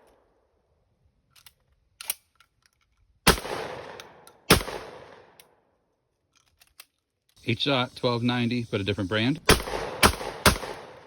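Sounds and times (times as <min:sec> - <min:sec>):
shotgun shots echoing: 0:03.2 - 0:05.4, 0:09.4 - 0:11.0.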